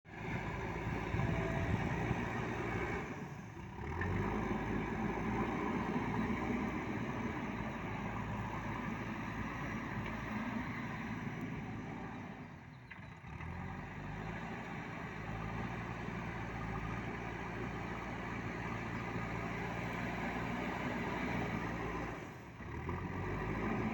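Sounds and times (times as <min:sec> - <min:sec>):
diesel engine running: 0:00.1 - 0:23.9.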